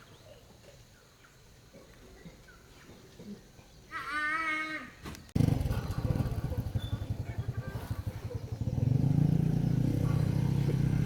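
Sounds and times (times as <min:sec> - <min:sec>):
diesel engine running: 0:05.4 - 0:11.0.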